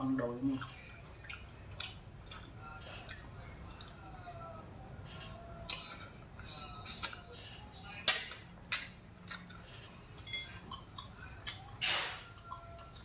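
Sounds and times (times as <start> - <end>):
person chewing: 0.4 - 13.0
wet smacks and clicks: 8.0 - 9.6.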